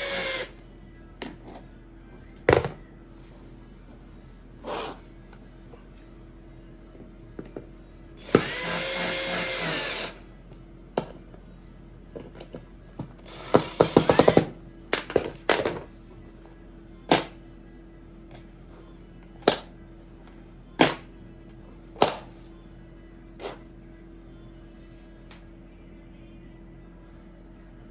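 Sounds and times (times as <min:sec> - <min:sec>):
power drill spinning: 0:00.0 - 0:00.5, 0:08.2 - 0:10.2, 0:13.3 - 0:14.5.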